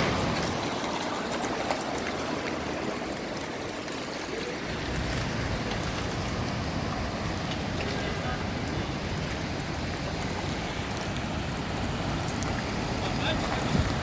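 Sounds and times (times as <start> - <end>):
storm wind and rain: 0.0 - 14.0
wind buffeting microphone: 4.5 - 14.0.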